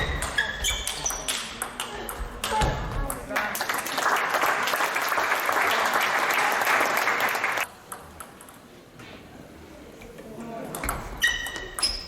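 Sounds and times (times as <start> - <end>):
audience applauding: 3.4 - 7.7.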